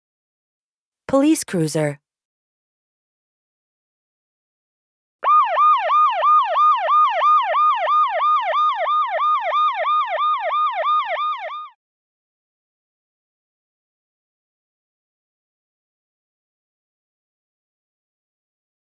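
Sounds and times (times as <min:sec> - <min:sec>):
police siren yelping: 0:05.2 - 0:11.8.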